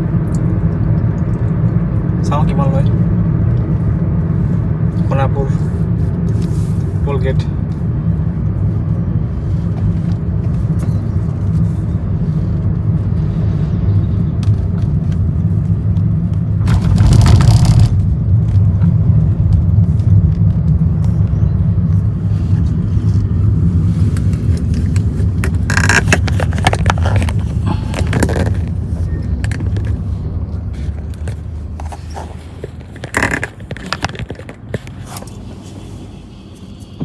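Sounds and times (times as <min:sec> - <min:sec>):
road and engine rumble in car: 0:00.0 - 0:37.0
rushes of noise: 0:12.2 - 0:20.1.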